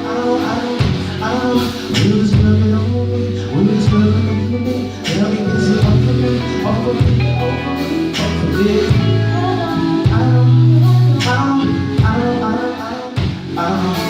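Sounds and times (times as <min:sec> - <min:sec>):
guitar playing: 0:00.0 - 0:14.0
low bass notes: 0:00.0 - 0:14.0.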